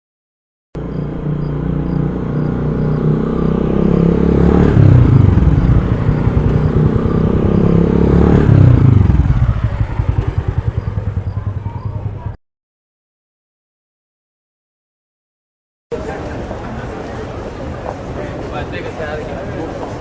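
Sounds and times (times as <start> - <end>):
engine running: 0.8 - 12.4.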